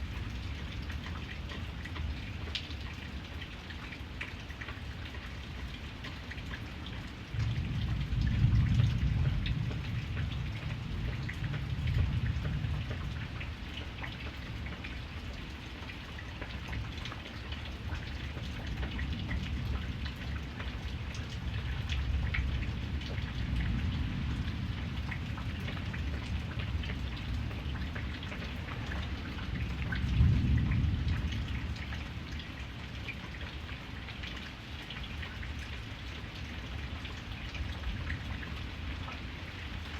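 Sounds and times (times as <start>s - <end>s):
rain pattering: 0.0s - 39.9s
rolling thunder: 7.4s - 13.0s, 29.6s - 32.0s.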